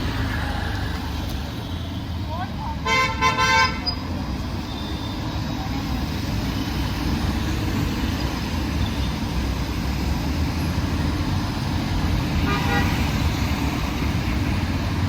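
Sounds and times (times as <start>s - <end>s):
road traffic rumble: 0.0s - 15.0s
vehicle horn honk: 2.9s - 3.9s, 12.4s - 13.0s.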